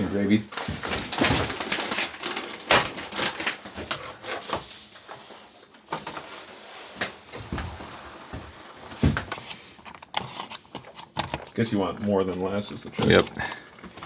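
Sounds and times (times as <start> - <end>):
foil pouch crinkling: 0.5 - 4.5, 8.9 - 14.0.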